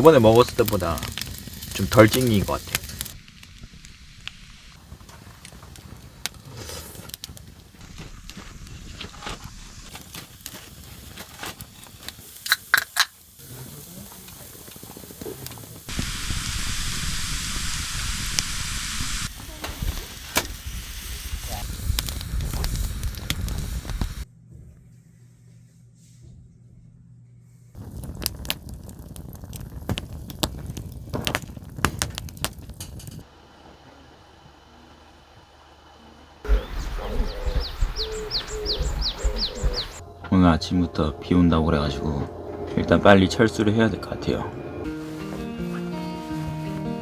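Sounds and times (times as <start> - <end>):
meat sizzling on a grill: 0.0 - 7.4, 9.5 - 24.2, 27.8 - 33.3
fire crackling and popping: 0.0 - 24.3, 27.8 - 33.3, 36.4 - 40.2
low hum: 32.2 - 45.7.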